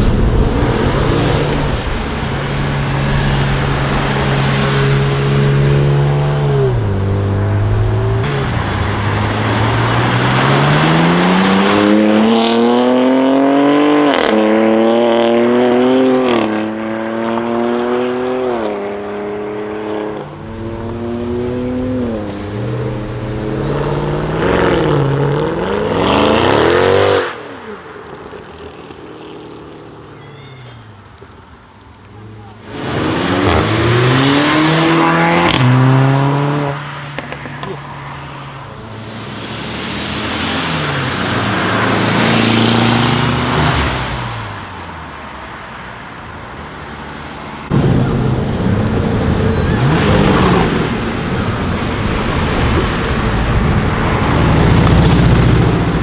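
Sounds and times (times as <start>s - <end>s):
car engine accelerating through gears: 0.0s - 29.9s, 32.2s - 37.9s.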